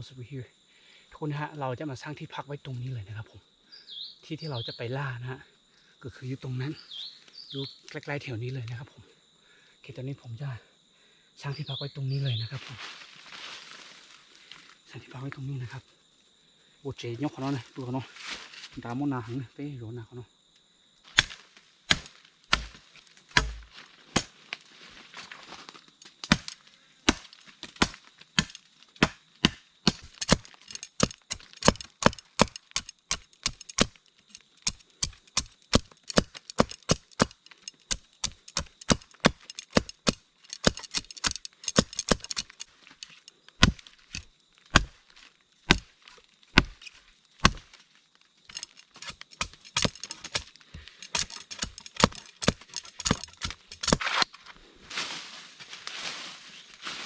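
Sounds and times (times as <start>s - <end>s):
blade chopping wood: 21.1s - 24.4s, 26.0s - 45.1s, 45.7s - 47.8s, 48.5s - 54.4s.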